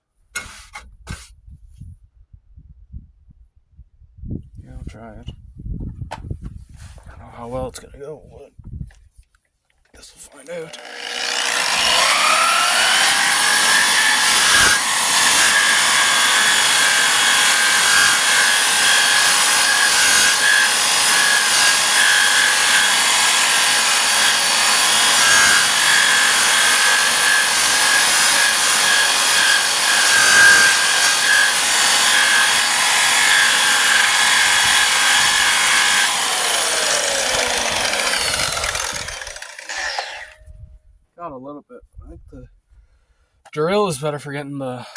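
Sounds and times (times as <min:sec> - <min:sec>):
power tool motor whine: 0:10.4 - 0:40.4.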